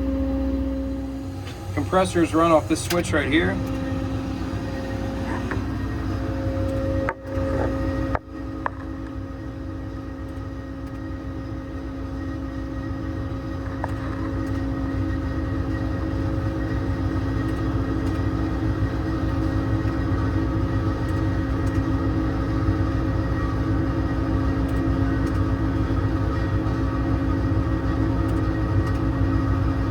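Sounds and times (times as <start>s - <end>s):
air compressor humming: 0.0s - 11.3s
diesel engine idling: 0.0s - 29.9s.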